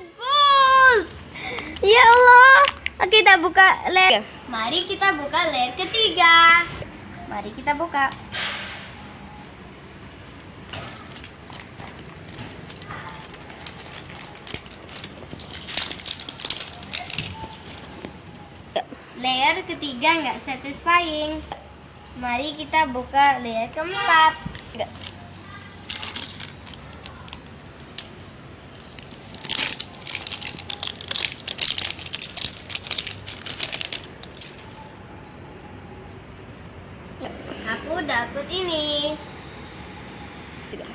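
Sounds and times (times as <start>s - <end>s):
plastic wrapping crinkling: 10.7s - 18.4s, 25.8s - 34.8s.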